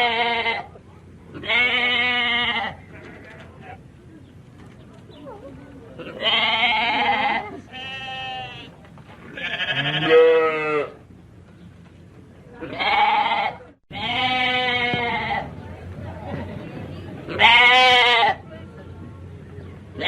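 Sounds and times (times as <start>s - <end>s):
sheep bleating: 0.0s - 0.7s, 1.4s - 3.4s, 6.0s - 8.7s, 9.3s - 11.0s, 12.6s - 15.5s, 17.3s - 18.4s.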